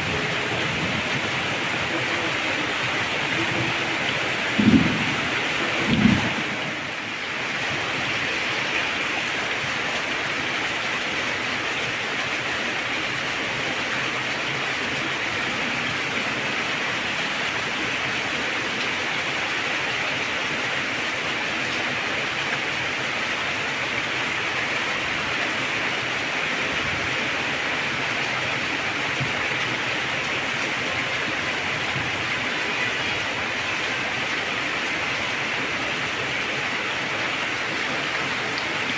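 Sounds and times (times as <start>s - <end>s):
heavy rain falling: 0.0s - 38.9s
thunder burst: 4.4s - 6.9s.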